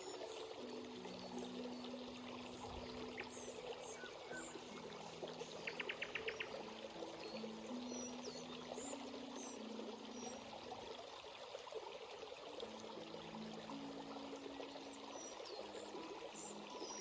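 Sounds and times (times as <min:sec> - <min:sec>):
small birds chirping: 0:00.0 - 0:10.5
stream flowing and trickling: 0:00.0 - 0:17.0
ticking bird calls: 0:05.6 - 0:06.6.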